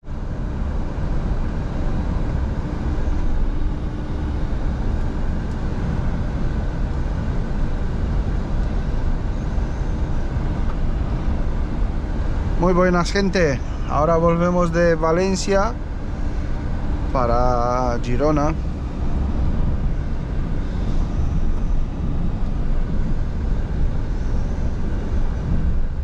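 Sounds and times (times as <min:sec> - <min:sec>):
truck engine and road rumble: 0:00.0 - 0:26.0.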